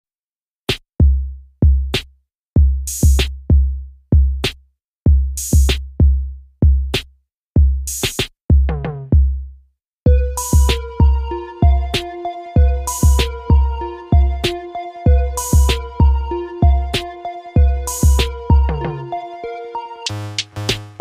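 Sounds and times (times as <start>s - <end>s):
deep kick drums: 2.6s - 4.4s, 7.6s - 7.9s, 12.6s - 17.0s, 17.6s - 18.8s
falling pitched notes: 10.1s - 21.0s
clap or snare hit: 20.4s - 21.0s.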